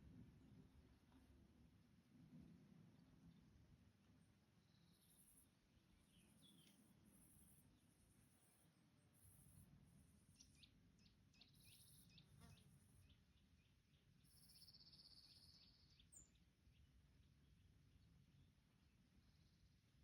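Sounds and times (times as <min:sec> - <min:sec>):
bird chirping: 0:04.6 - 0:08.6, 0:09.2 - 0:18.5.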